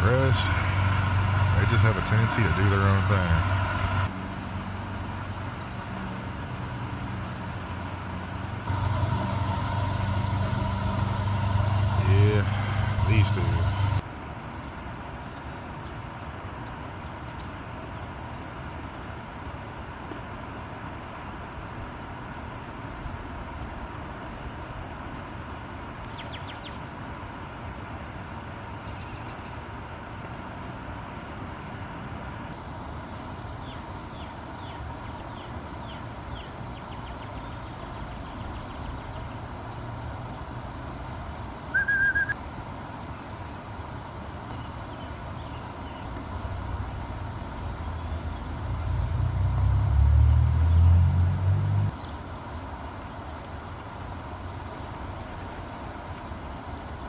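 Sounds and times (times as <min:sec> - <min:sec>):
road vehicle passing: 0:00.0 - 0:14.0, 0:44.3 - 0:52.0
small birds chirping: 0:43.2 - 0:52.8.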